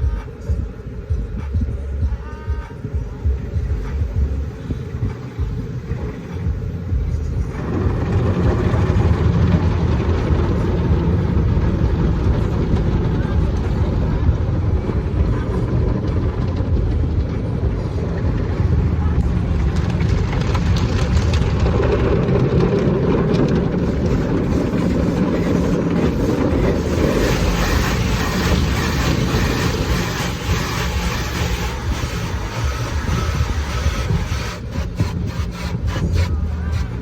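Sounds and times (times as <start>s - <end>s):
car wash machinery rumbling: 0.0s - 37.0s.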